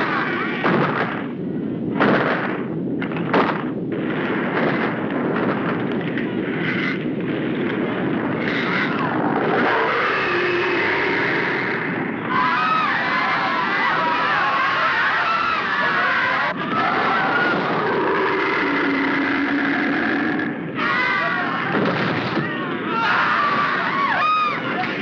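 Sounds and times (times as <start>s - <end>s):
sharp blasts: 0.0s - 14.8s, 15.5s - 23.6s
heavy rumbling noise: 0.0s - 25.0s.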